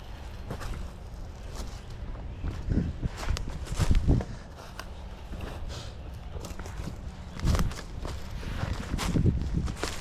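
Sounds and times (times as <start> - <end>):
footsteps on a path: 0.0 - 10.0.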